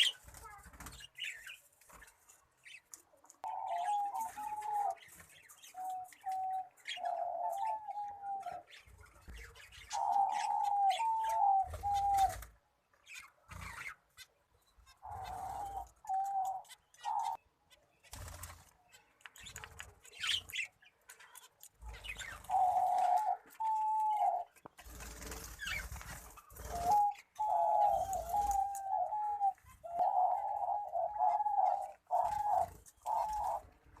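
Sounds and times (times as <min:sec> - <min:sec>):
doves cooing: 0:03.4 - 0:08.8, 0:09.7 - 0:12.5, 0:14.9 - 0:17.4, 0:21.9 - 0:34.0.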